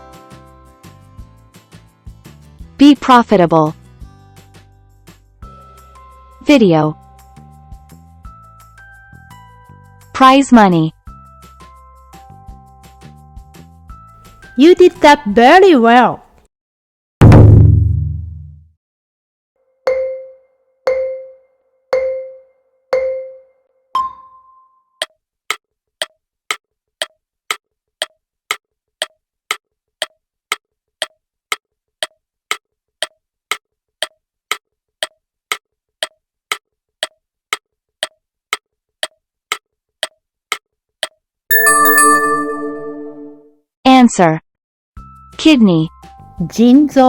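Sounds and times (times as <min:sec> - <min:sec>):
electronic countdown beeps: 0:41.5 - 0:43.4.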